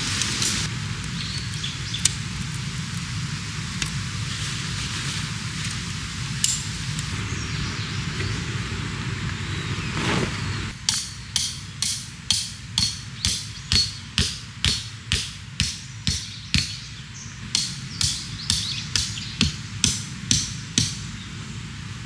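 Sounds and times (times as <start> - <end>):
hammering with metallic ring: 10.8 - 21.2.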